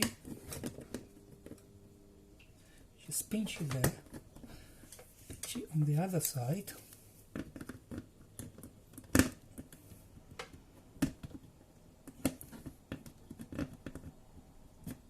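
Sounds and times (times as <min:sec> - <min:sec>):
plastic clicks and knocks: 0:07.3 - 0:15.0.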